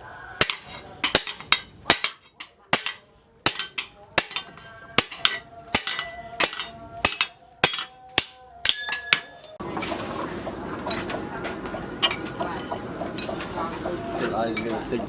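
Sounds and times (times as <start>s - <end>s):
hammer striking steel on anvil: 0.4s - 9.6s.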